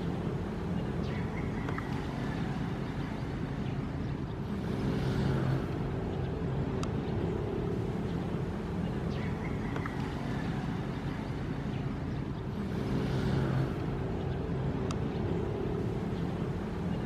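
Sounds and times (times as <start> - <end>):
faint ticks: 14.8 - 15.1.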